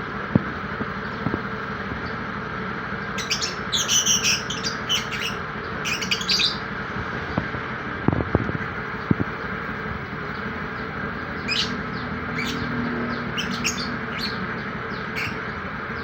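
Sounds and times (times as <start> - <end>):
lovebirds chirping and squawking: 3.1 - 6.7, 10.3 - 16.0.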